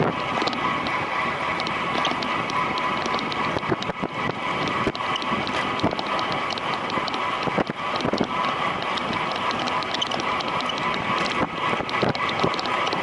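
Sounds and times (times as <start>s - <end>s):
bicycle freewheel ticking: 0.0s - 13.0s
wind rushing over microphone: 0.0s - 13.0s.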